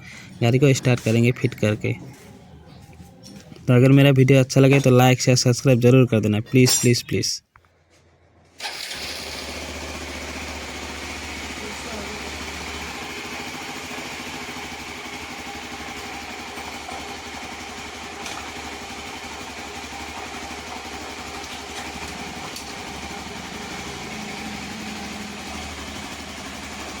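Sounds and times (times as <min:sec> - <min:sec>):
motorcycle engine idling: 0:08.7 - 0:27.0.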